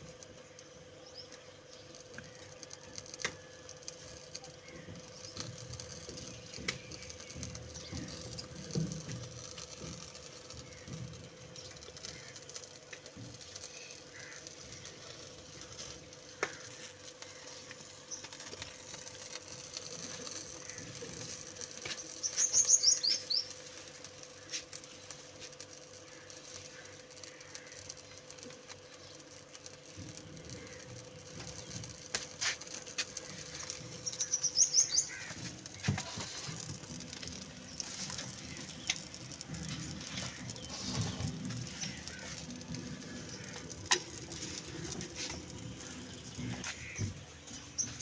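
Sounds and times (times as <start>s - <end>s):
faint steady hum: 0.0s - 48.0s
small bird chirping: 16.6s - 29.8s, 33.2s - 48.0s.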